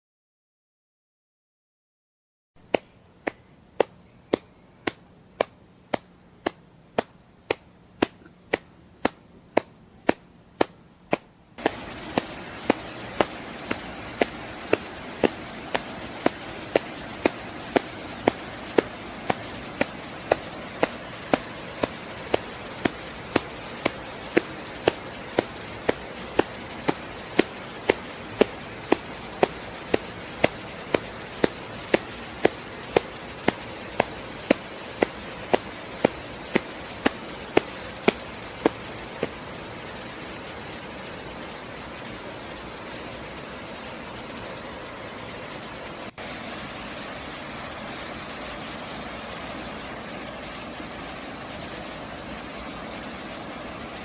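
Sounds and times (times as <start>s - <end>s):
faint steady hiss: 2.6s - 54.0s
sharp even knocks: 2.7s - 39.3s.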